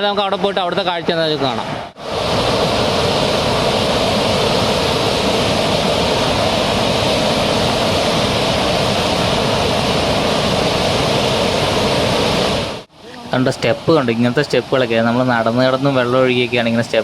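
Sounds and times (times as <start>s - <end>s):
waterfall roar: 0.6s - 17.0s.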